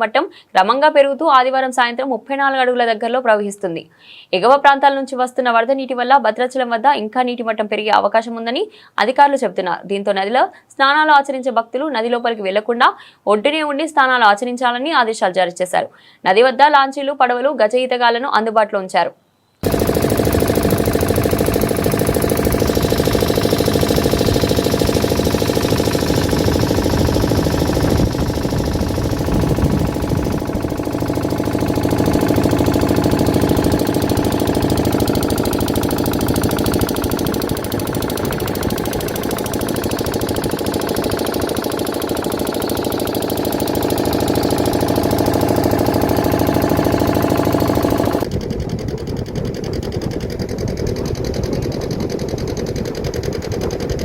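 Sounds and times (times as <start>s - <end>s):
engine running with knocking beat: 19.6s - 54.0s.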